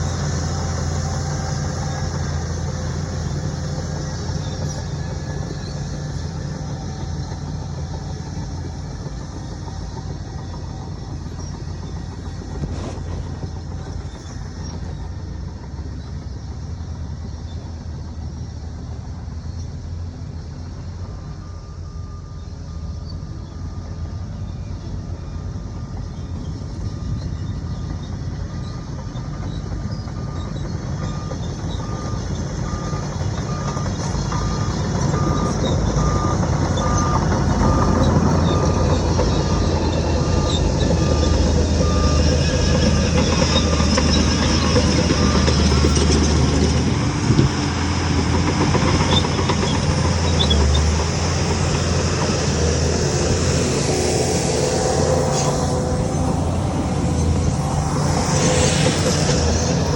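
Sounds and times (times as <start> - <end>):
heavy diesel engine running: 0.0 - 59.9
reversing alarm beeps: 21.1 - 47.6.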